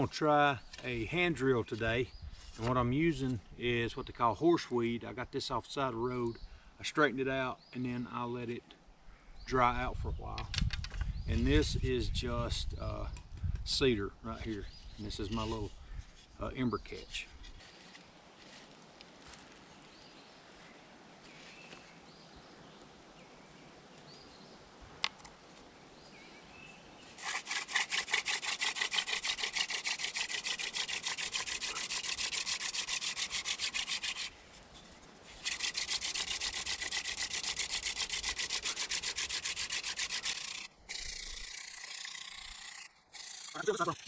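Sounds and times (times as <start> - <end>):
wooden spindle rasping on board: 27.2 - 34.4, 35.4 - 44.0.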